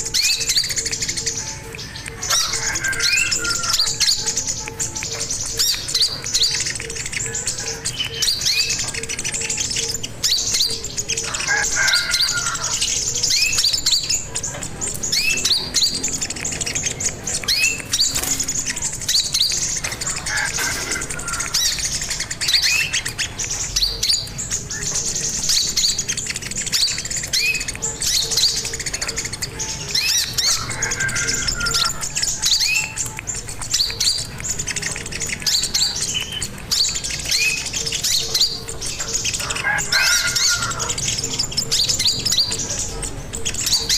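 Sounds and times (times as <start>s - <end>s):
songbird chirping and twittering: 0.0s - 43.9s.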